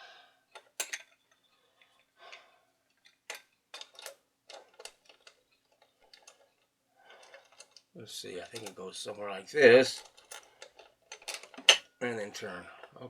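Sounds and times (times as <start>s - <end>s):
record player parts clicking: 3.0s - 11.8s.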